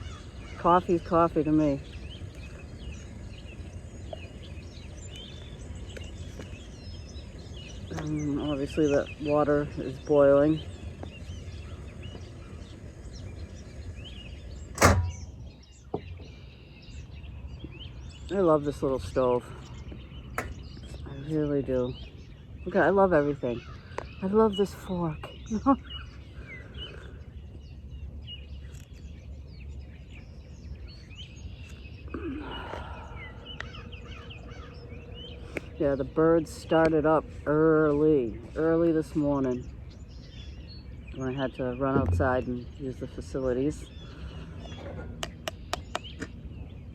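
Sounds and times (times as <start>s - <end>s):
camping stove rumbling: 0.0s - 23.4s, 41.5s - 46.6s
small birds chirping: 0.0s - 46.9s
sharp click: 14.8s - 15.4s.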